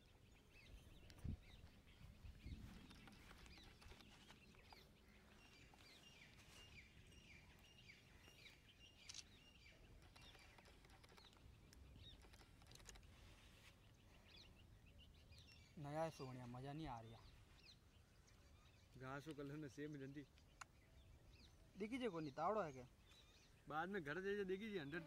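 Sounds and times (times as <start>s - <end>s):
faint bird chirps: 0.0s - 25.0s
faint clicks: 9.0s - 13.2s.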